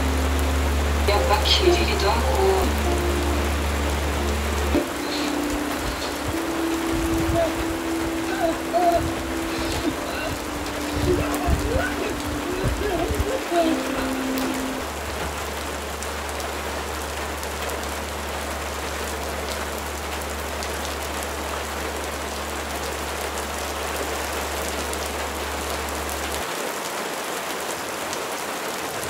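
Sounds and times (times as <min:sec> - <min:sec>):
low steady hum: 0:00.0 - 0:22.8
steady rain: 0:00.0 - 0:29.0.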